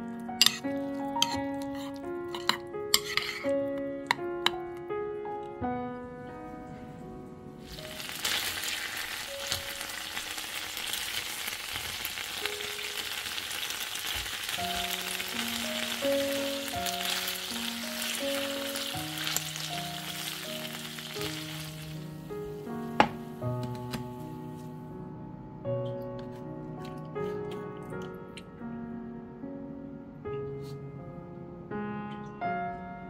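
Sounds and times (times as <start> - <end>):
chicken frying in a pan: 7.6 - 22.3.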